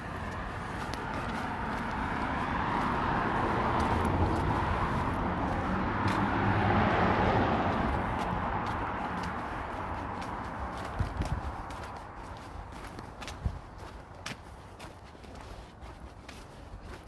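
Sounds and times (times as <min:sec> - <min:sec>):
car driving past: 0:01.0 - 0:10.6.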